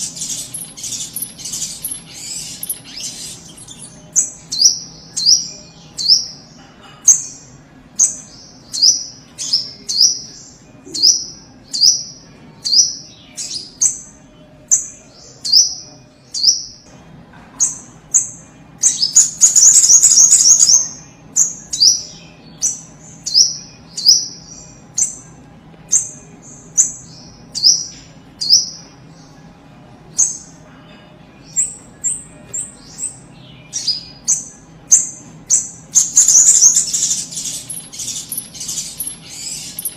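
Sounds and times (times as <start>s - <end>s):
bird high chirps dropping in pitch: 36.0s - 39.9s.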